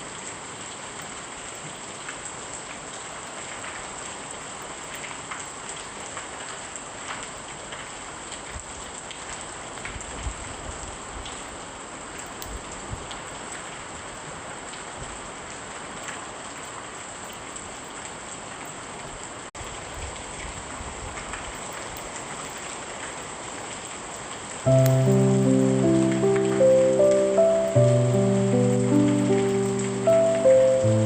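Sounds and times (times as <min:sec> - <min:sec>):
heavy rain hissing: 0:24.7 - 0:31.0.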